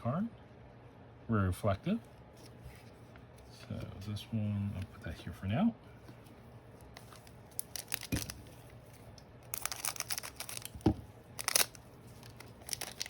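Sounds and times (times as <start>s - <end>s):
cards and wrapper rustling: 6.8s - 13.0s.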